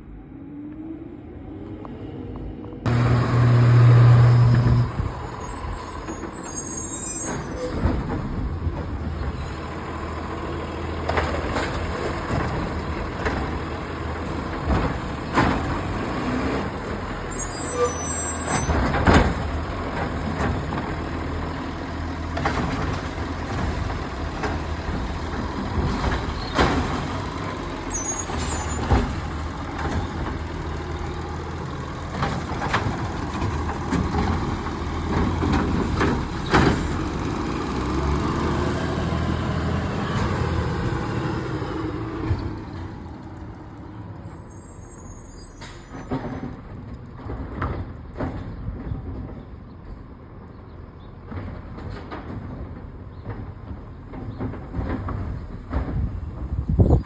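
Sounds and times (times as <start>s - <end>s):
garbage truck engine running: 2.9s - 44.5s
knocks and clanks: 22.2s - 38.1s.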